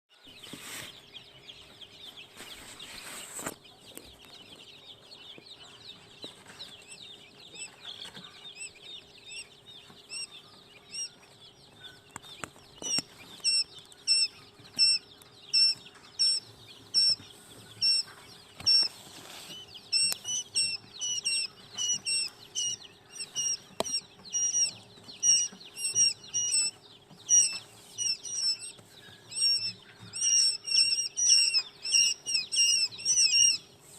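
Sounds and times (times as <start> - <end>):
chicks peeping: 0.1 - 33.9
rustle: 18.9 - 19.6.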